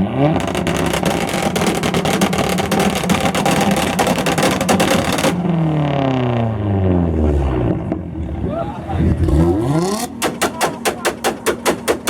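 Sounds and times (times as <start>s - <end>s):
exhaust crackle pops: 0.3s - 5.7s, 9.9s - 12.0s
car engine at high revs: 8.9s - 12.0s.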